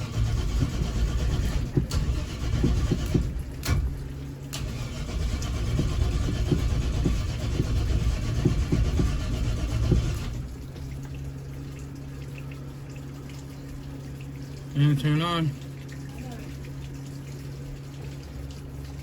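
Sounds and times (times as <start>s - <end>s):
engine cranking by starter motor: 0.0s - 10.7s.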